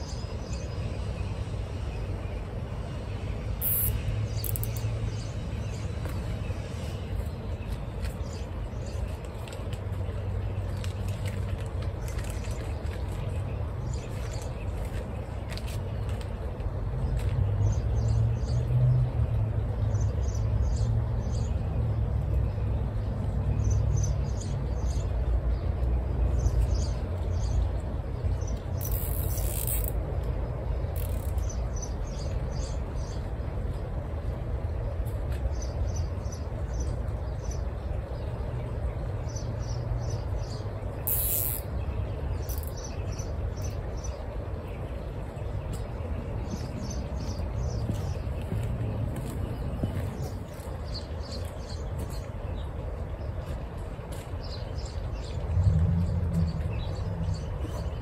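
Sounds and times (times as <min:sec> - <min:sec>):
steady low rumble: 0:00.0 - 0:58.0
small birds chirping: 0:03.6 - 0:09.4, 0:23.6 - 0:29.9, 0:38.9 - 0:58.0.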